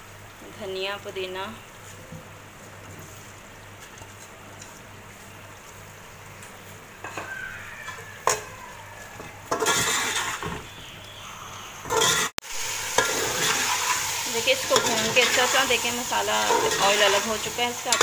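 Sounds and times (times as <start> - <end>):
food frying sizzle: 0.0 - 18.0
metal spoon scraping in pot: 9.5 - 10.6, 11.9 - 12.3, 13.0 - 18.0.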